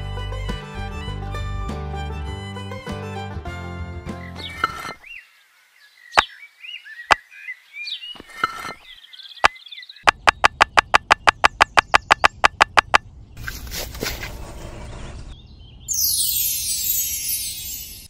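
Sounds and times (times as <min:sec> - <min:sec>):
birds chirping faintly: 0:04.1 - 0:13.8
clay bricks clicking into soil: 0:04.5 - 0:05.0, 0:08.2 - 0:14.3.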